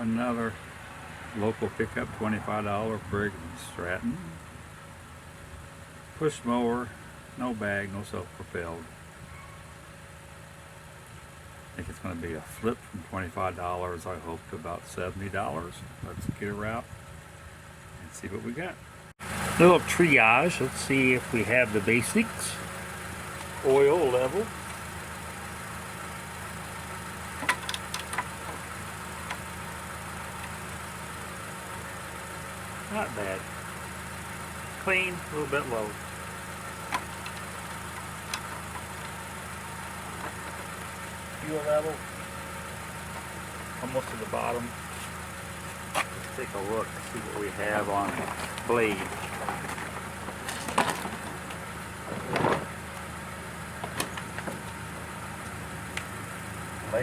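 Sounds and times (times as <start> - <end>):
low engine hum: 0.0 - 57.0
mower scraping: 19.2 - 57.0
knocks on push mower: 27.4 - 29.4.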